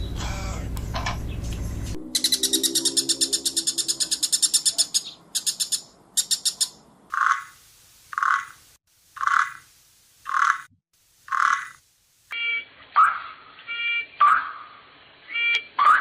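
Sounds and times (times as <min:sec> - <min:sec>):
high-pitched animal trill: 0:02.0 - 0:05.0
animal croaking calls: 0:07.1 - 0:08.6, 0:09.2 - 0:09.6, 0:10.3 - 0:10.7, 0:11.3 - 0:11.8, 0:15.8 - 0:16.0.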